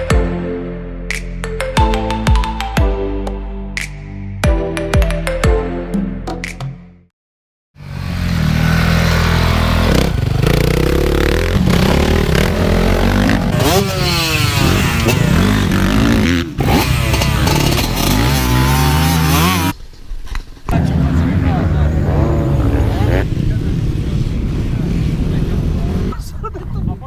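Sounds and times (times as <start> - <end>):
motocross bike engines revving: 7.8 - 19.8, 20.7 - 26.3.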